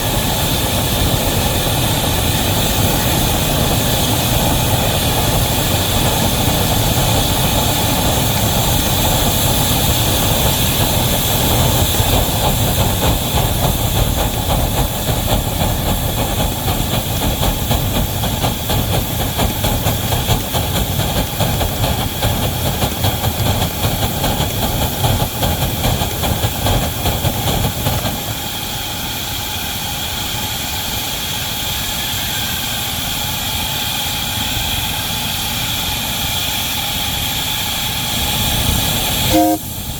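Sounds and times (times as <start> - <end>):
locomotive rumble: 0.0 - 35.7.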